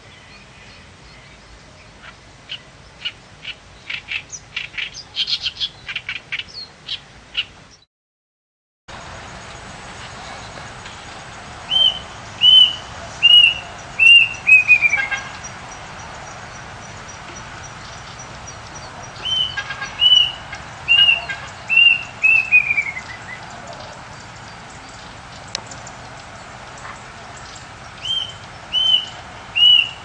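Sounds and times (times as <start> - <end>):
steady background hiss: 0.0 - 7.8, 9.0 - 30.0
songbird whistling and trilling: 11.7 - 15.3, 19.2 - 24.0, 27.4 - 30.0.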